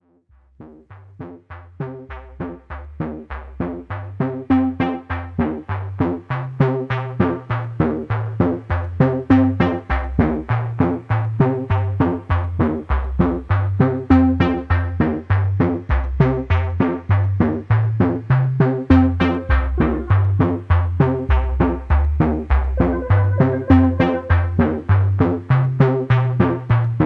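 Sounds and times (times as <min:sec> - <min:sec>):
rhythmic electronic music: 0:04.5 - 0:05.6, 0:14.1 - 0:15.0, 0:18.9 - 0:21.3, 0:22.7 - 0:25.1.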